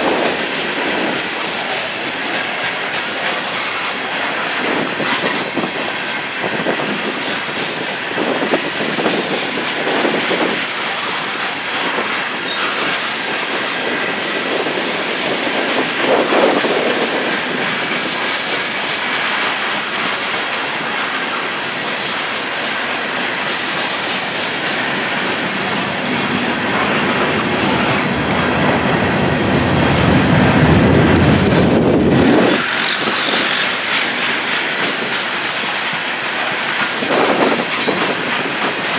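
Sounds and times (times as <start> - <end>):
freight train rolling past: 0.0 - 38.9
train wheels clicking over rail joints: 0.0 - 38.9
heavy rumble: 23.3 - 32.6.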